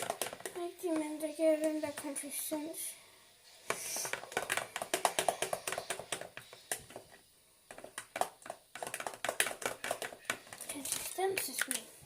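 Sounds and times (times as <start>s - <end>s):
slime stirred with sticky squelches: 3.4s - 12.0s.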